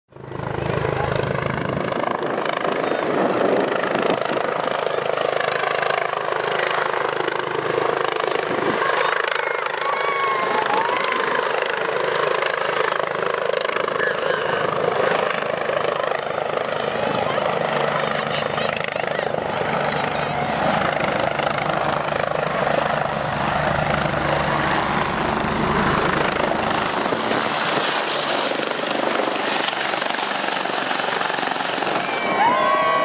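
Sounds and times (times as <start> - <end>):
helicopter rotor and engine: 0.1 - 33.0
crowd voices: 8.6 - 11.6, 13.9 - 22.0, 31.2 - 33.0.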